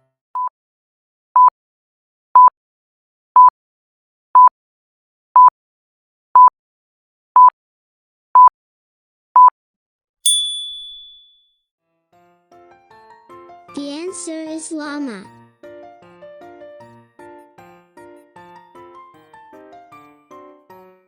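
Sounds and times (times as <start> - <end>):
high bell-like ding: 10.3 - 11.4.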